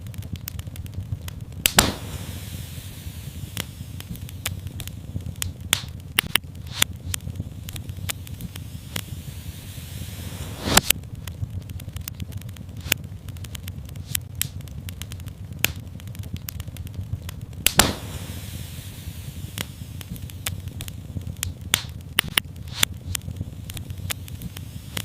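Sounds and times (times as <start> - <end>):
fireplace fire crackling: 0.0 - 25.0
low rumble of flame: 0.0 - 25.0
brief hiss: 8.6 - 10.9.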